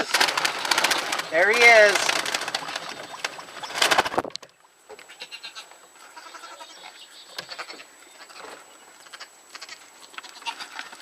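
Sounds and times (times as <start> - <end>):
soft wavering animal calls: 4.5 - 10.9.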